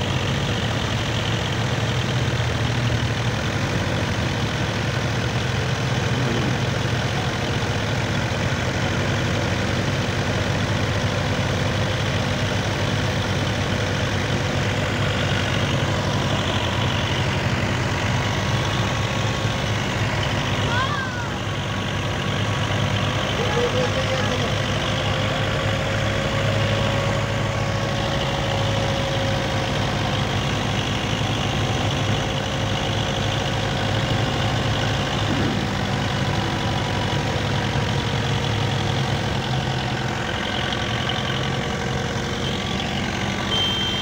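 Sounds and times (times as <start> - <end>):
tractor engine idling: 0.0 - 44.0
faint steady high tone: 42.4 - 44.0.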